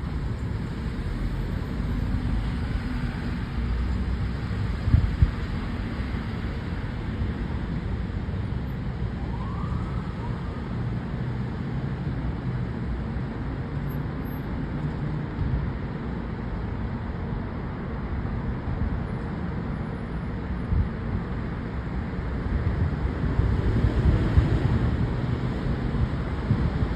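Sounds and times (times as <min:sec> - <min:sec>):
distant city traffic rumble: 0:00.0 - 0:26.9
faint siren wail: 0:09.0 - 0:10.9.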